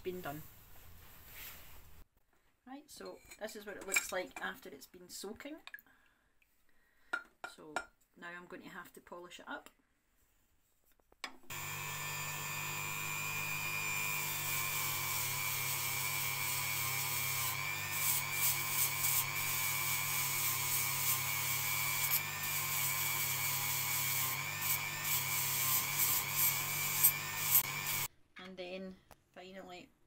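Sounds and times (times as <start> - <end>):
rotary tool whining: 11.5 - 28.1.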